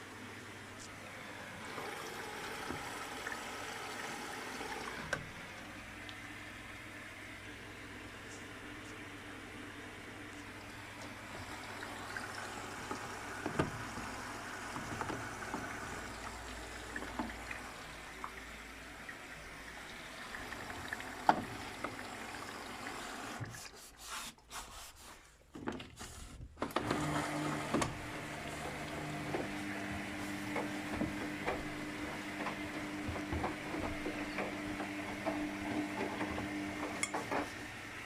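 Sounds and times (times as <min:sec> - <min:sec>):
water sloshing in washing machine: 0:00.0 - 0:38.0
low motor hum: 0:26.9 - 0:37.5
washing machine knocks: 0:28.7 - 0:37.5.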